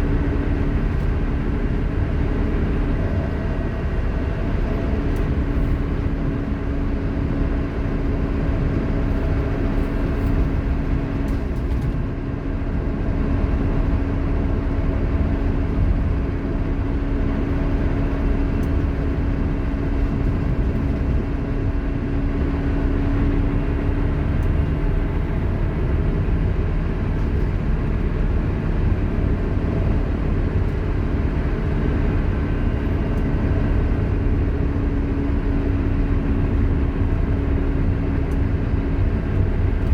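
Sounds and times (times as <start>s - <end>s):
engine and road rumble: 0.0s - 39.9s.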